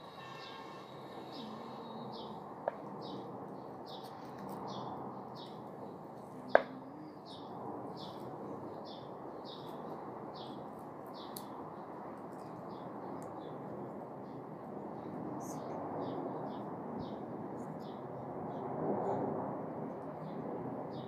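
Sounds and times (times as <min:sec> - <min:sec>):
small bird chirping: 0:00.0 - 0:03.3
background noise: 0:00.0 - 0:21.0.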